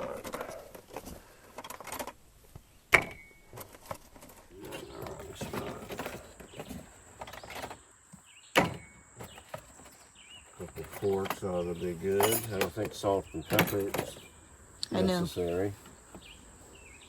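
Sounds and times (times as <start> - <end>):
utensils and dishes clattering: 12.1 - 14.2.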